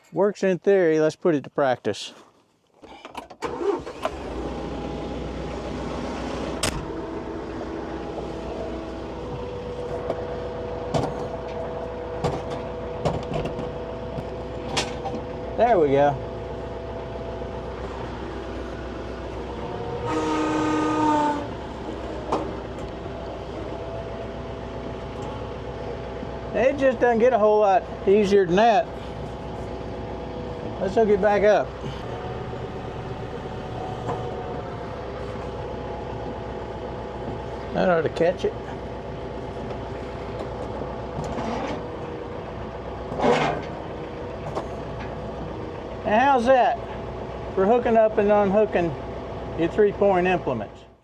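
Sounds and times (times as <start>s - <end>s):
tractor engine running: 3.4s - 51.0s
horn-like tone: 19.6s - 21.9s.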